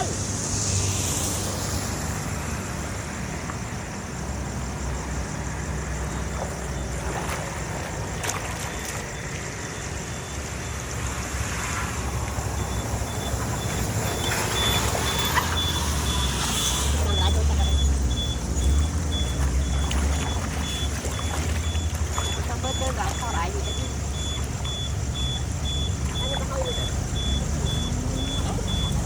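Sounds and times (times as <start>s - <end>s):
heavy vehicle engine rumbling: 0.0s - 29.0s
faint high beep: 12.5s - 29.0s.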